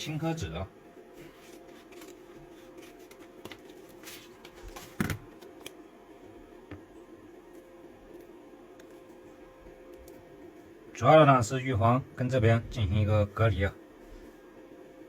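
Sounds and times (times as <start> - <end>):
faint steady hum: 0.0 - 15.0
paper handling clicks and rustles: 1.2 - 5.8.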